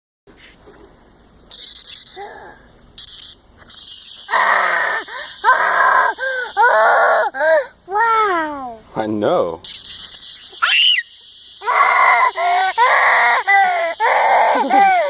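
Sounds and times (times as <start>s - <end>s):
cicada buzzing: 3.0s - 7.4s, 9.6s - 15.0s
young child crying and whining: 4.3s - 8.9s, 11.6s - 15.0s.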